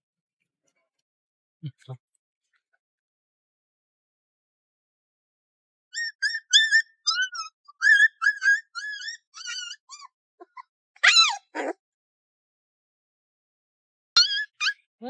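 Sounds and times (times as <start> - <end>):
puppy whimpering: 6.0 - 11.8, 14.2 - 14.8.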